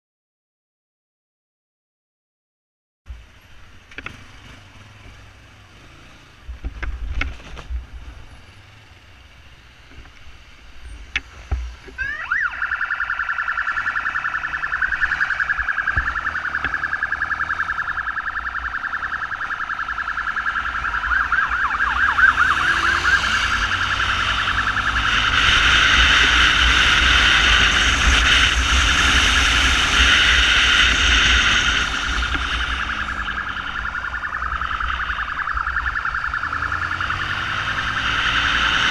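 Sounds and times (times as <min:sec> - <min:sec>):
warbling emergency siren: 0:11.8 - 0:38.9.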